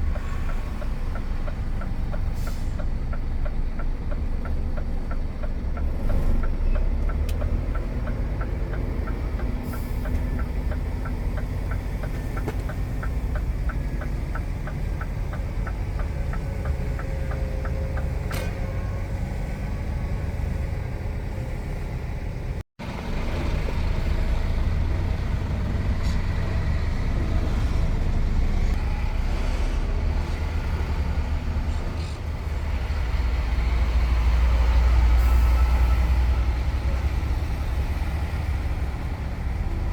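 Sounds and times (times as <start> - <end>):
turn-signal ticking: 0.0 - 18.2
truck diesel engine rumble: 0.0 - 39.9.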